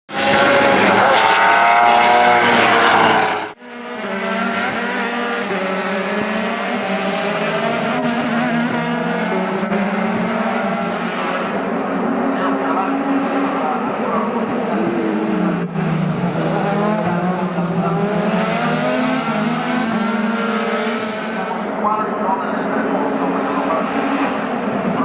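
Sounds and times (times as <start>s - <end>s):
race car engines at high revs: 0.1s - 25.0s.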